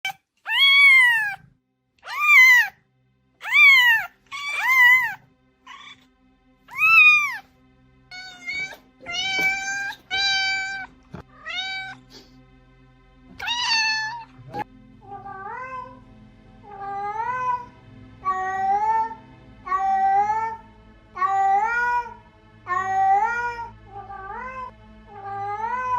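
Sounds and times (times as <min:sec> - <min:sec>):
cats meowing: 0:00.5 - 0:01.4, 0:02.0 - 0:02.7, 0:03.4 - 0:06.0, 0:06.7 - 0:07.4, 0:08.1 - 0:12.1, 0:13.4 - 0:14.6.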